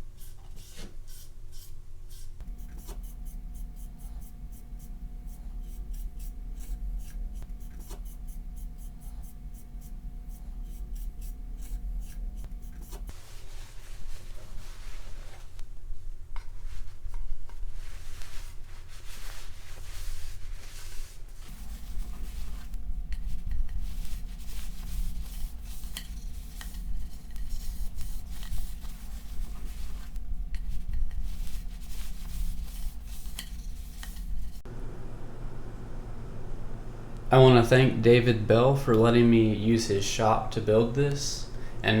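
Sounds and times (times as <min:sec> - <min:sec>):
steady low hum: 0:01.8 - 0:13.5, 0:21.4 - 0:42.0
cloth rubbing on wood: 0:02.1 - 0:15.6, 0:17.7 - 0:34.8.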